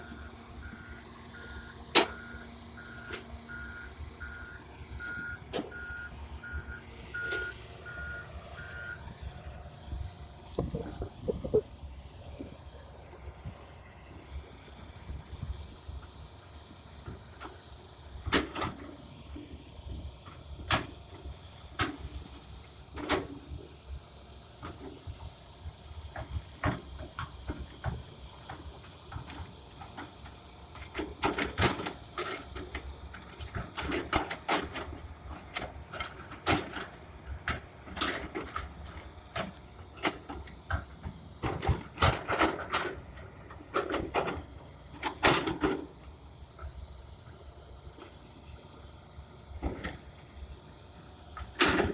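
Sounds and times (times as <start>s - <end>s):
low engine rumble: 0.0s - 51.9s
excavator knocks and clunks: 0.7s - 12.6s, 17.0s - 19.0s, 24.6s - 47.4s, 49.5s - 50.6s, 51.2s - 51.9s.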